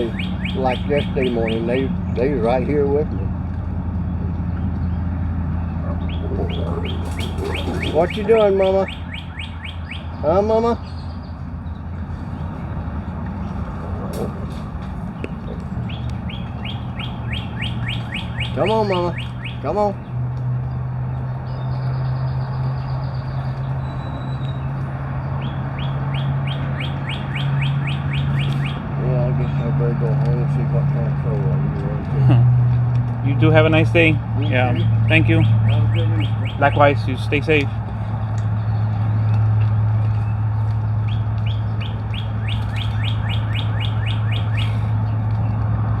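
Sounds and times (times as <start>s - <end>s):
bird whistling: 0.0s - 1.7s, 5.8s - 10.2s, 13.4s - 19.6s, 21.5s - 24.8s, 25.4s - 28.8s, 35.0s - 36.8s, 41.0s - 45.0s
steady low hum: 0.0s - 20.0s
bird whistling falling notes: 13.5s - 19.6s, 41.1s - 44.9s.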